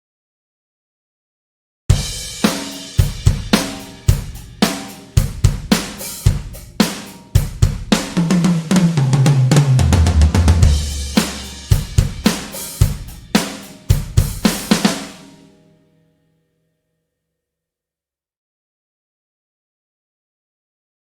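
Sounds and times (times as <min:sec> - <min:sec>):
acoustic drum kit groove: 0:01.9 - 0:15.5.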